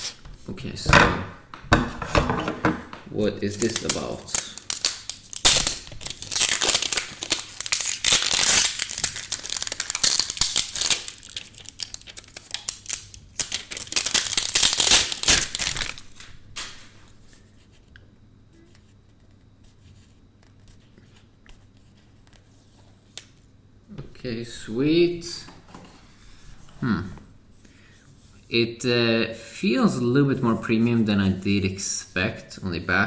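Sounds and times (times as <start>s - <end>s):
packaging crinkling and tearing: 3.4s - 17.1s.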